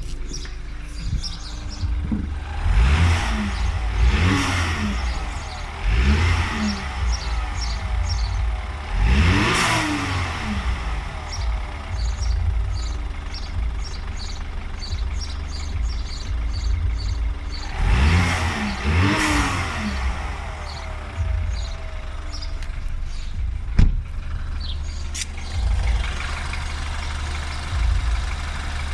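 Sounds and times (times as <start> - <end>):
car engine revving: 0.0 - 28.9
engine buzzing noise: 0.0 - 28.9
sharp click: 25.1 - 25.4.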